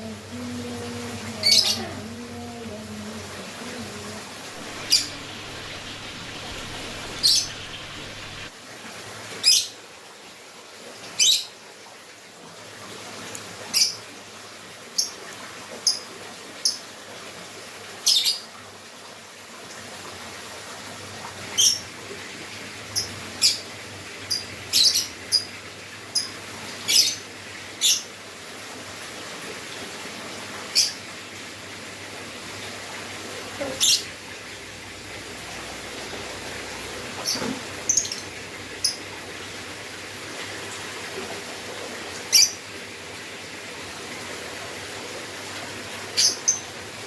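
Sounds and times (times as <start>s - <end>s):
lovebird chirping: 1.4s - 2.0s, 4.5s - 8.5s, 37.2s - 39.0s
faint hiss: 1.4s - 9.0s.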